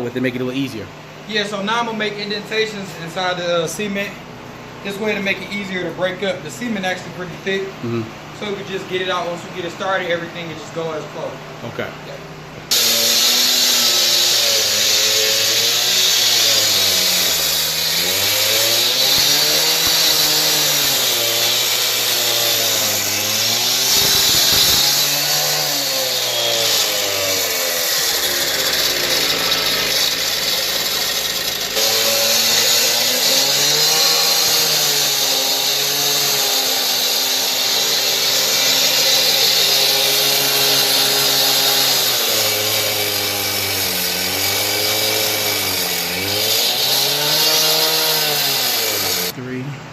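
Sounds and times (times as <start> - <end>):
power saw cutting concrete: 8.4 - 11.1, 12.7 - 49.4.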